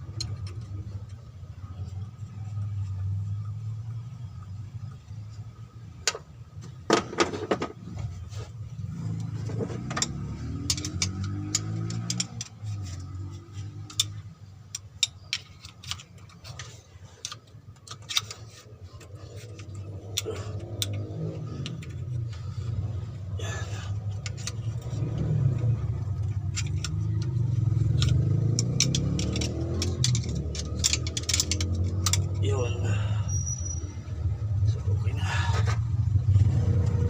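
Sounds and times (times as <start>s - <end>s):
metallic clicks of hand tools: 0.0s - 1.3s, 9.1s - 22.4s, 23.8s - 32.6s
vehicle engine running: 7.4s - 37.0s.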